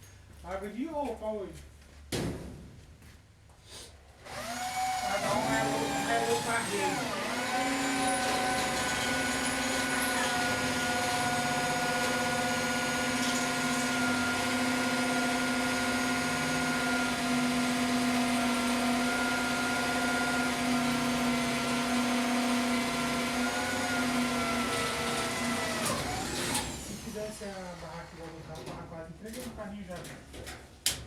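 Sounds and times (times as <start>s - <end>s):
motor humming: 4.3s - 17.1s.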